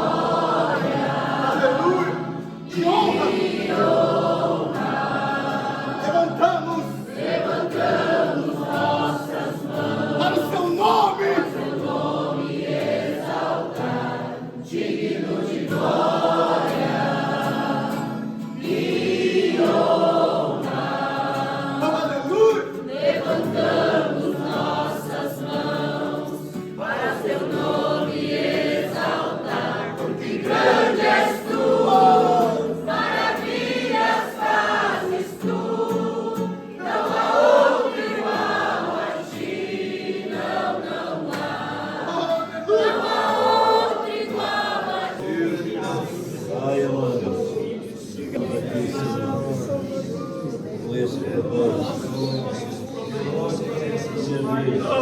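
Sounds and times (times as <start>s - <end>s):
group singing worship song: 0.0s - 55.0s.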